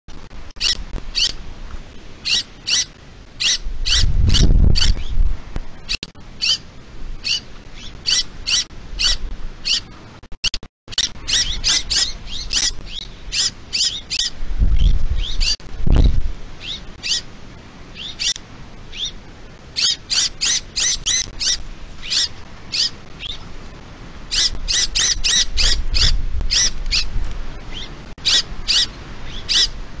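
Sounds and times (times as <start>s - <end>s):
birds calling: 0.5s - 1.4s, 2.2s - 10.0s, 10.9s - 23.6s, 24.2s - 30.0s
low rumbles: 11.1s - 19.8s.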